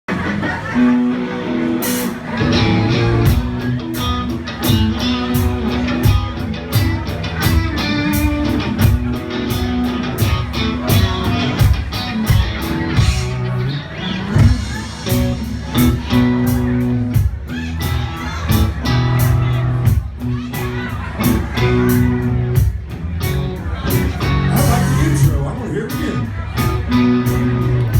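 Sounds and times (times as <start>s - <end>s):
bass: 0.1s - 27.9s
guitar: 0.1s - 27.9s
steady drum beat: 1.8s - 27.9s.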